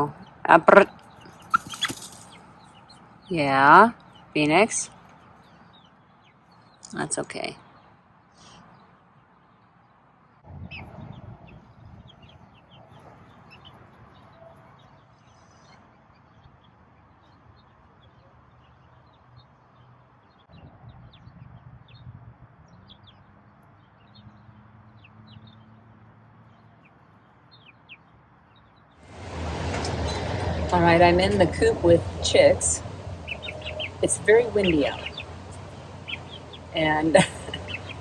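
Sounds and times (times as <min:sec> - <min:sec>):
young chickens peeping: 0:00.1 - 0:04.2, 0:26.8 - 0:38.0
wind rumble on microphone: 0:10.4 - 0:14.2, 0:20.5 - 0:23.1, 0:29.1 - 0:38.0.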